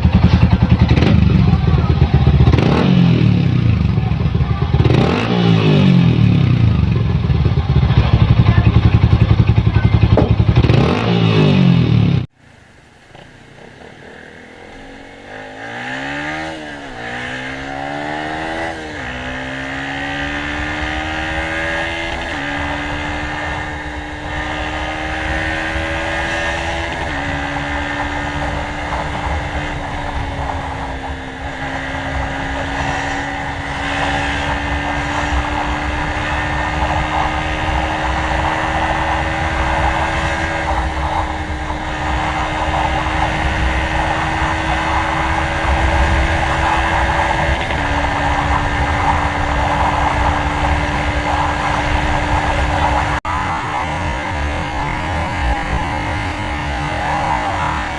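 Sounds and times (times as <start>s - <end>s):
motorcycle accelerating through gears: 0.0s - 12.4s, 13.1s - 57.9s
wind noise: 15.0s - 57.9s.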